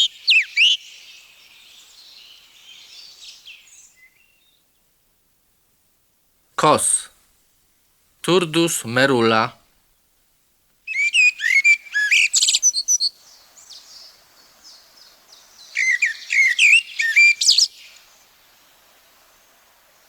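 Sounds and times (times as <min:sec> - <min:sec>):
blackbird singing: 0:00.0 - 0:04.6, 0:10.9 - 0:18.0.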